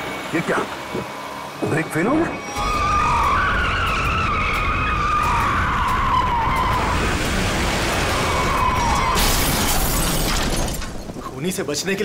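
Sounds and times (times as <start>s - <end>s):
tyres squealing in a skid: 1.8s - 11.4s
car crash: 2.5s - 11.3s.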